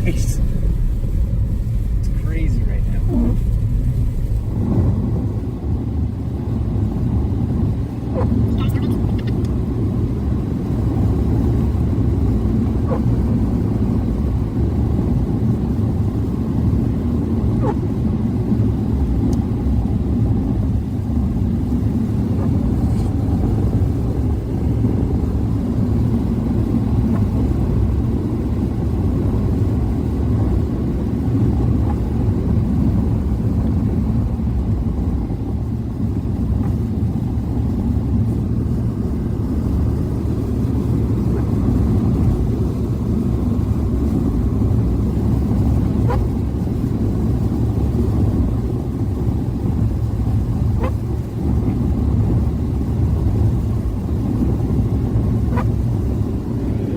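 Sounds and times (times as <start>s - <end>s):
ventilation fan running: 0.0s - 6.6s
road and tyre rumble: 0.0s - 56.9s.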